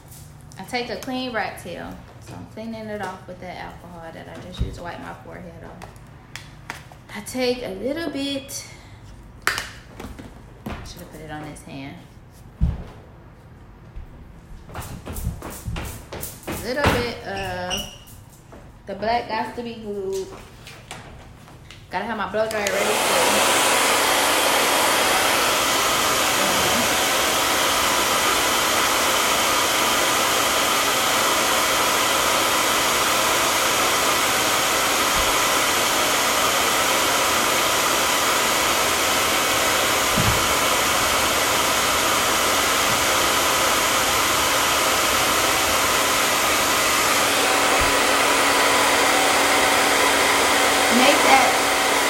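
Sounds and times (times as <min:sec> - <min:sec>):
blow dryer running: 0:22.2 - 0:52.0.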